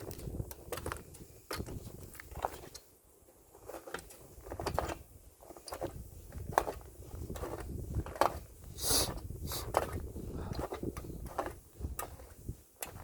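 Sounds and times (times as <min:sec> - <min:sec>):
wind rumble on microphone: 0:00.0 - 0:02.8, 0:05.8 - 0:13.0
footsteps on a trail: 0:00.0 - 0:13.0.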